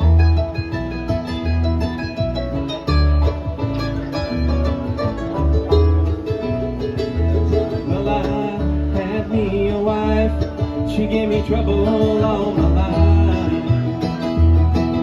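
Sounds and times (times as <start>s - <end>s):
banjo notes: 0.0s - 15.0s
picked guitar: 0.0s - 15.0s
steady bass beat: 0.0s - 15.0s.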